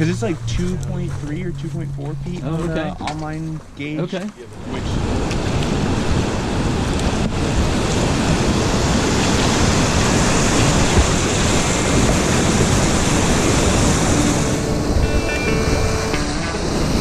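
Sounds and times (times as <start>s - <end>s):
held musical tones: 0.0s - 4.6s, 12.9s - 17.0s
wind on microphone: 0.0s - 17.0s
river rapids rushing: 4.6s - 17.0s.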